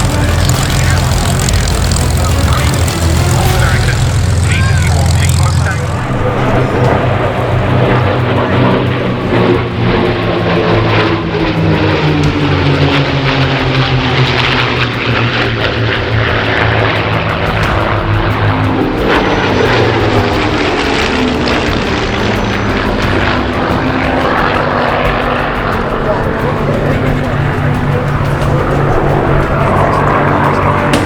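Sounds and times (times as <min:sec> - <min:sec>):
propeller aircraft flying past: 0:00.0 - 0:31.0.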